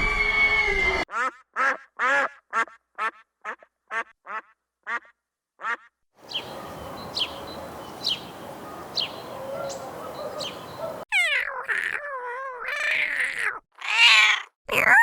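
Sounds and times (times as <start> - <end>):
background hiss: 6.2 - 11.0
small bird chirping: 6.2 - 11.0
cat meowing: 12.6 - 14.5.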